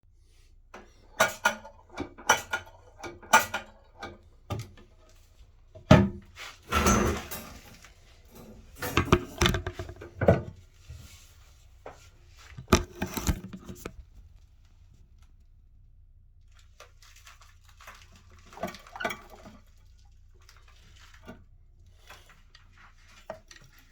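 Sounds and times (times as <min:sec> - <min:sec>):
handling knocks and clunks: 0:05.8 - 0:11.2, 0:11.8 - 0:14.4.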